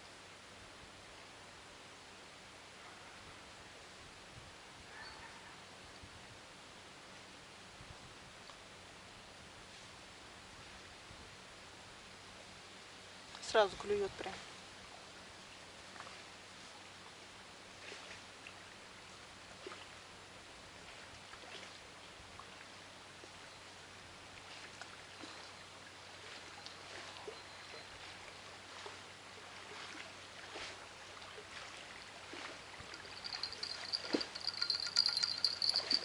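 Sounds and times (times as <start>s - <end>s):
flowing water hiss: 28.2s - 36.0s
small ticks: 32.9s - 36.0s
high-pitched chirring: 33.1s - 36.0s.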